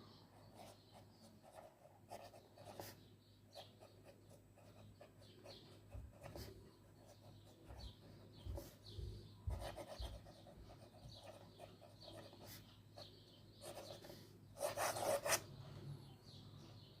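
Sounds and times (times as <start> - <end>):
fountain pen scratching paper: 9.5 - 12.6, 14.6 - 15.4.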